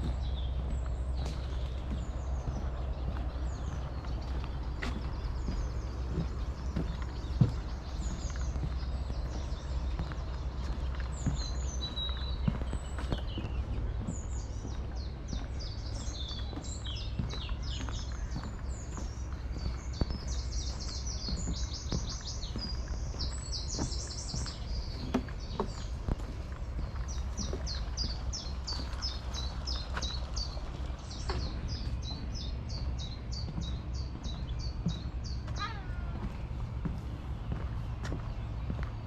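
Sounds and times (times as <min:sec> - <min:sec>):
songbirds chirping: 0:00.0 - 0:39.0
steady low rumble: 0:00.0 - 0:39.0.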